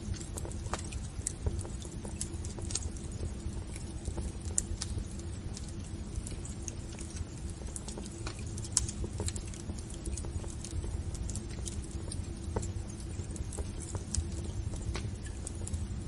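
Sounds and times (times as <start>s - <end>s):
low steady fire rumble: 0.0s - 16.0s
wood fire crackling and popping: 0.0s - 16.0s.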